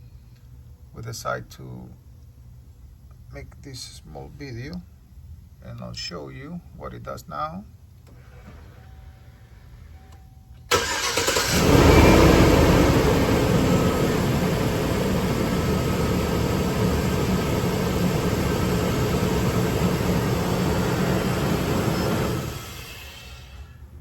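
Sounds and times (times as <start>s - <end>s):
engine starting and idling: 8.1s - 9.5s, 10.7s - 23.8s.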